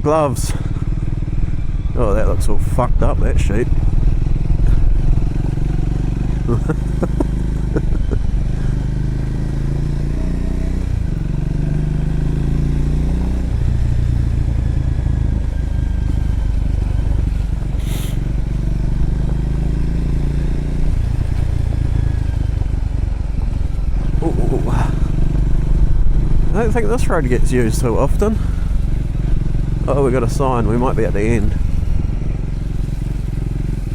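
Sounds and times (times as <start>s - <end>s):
motorcycle engine running: 0.0s - 33.9s
short hiss: 17.8s - 18.2s.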